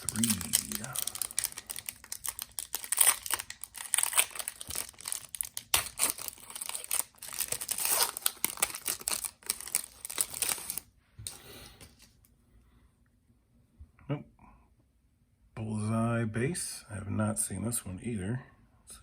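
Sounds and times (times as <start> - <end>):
wrapper crinkling and tearing: 0.0 - 10.9.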